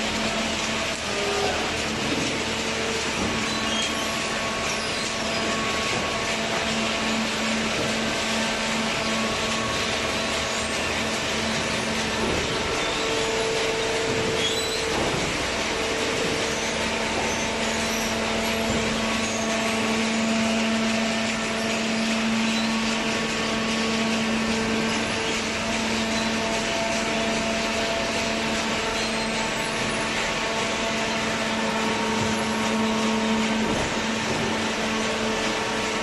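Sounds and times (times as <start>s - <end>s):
baler machine hum: 0.0s - 36.0s.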